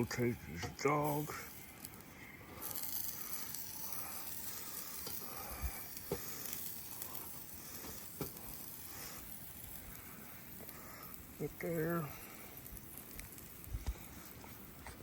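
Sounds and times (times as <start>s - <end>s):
hot dogs sizzling on a grill: 0.0s - 15.0s
sharp clicks of turning food: 0.0s - 15.0s.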